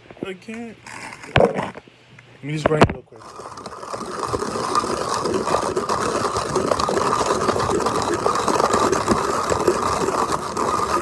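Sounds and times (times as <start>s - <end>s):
coffee grinder grinding beans: 0.8s - 1.5s, 3.2s - 11.0s.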